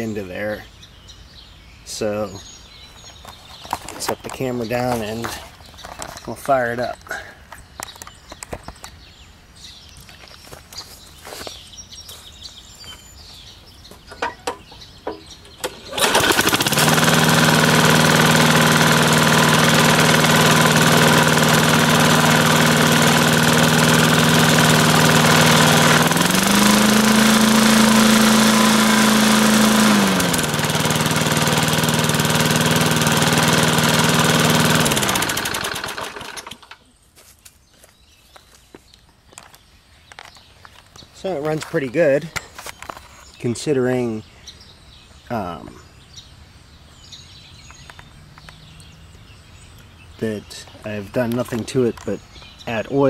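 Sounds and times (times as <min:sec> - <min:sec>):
lawn mower engine running: 0:14.1 - 0:36.8.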